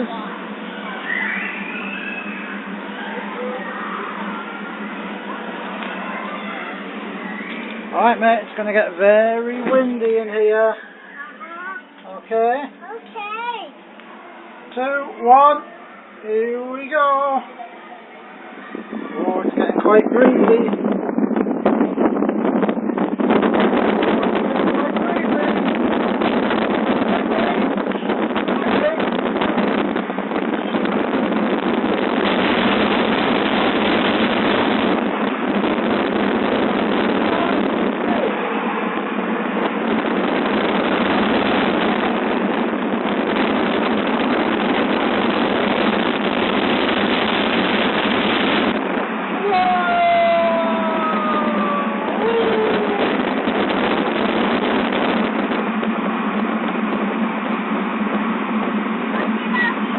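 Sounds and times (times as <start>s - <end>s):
low hum: 0.0s - 59.9s
wind buffeting microphone: 0.0s - 59.9s.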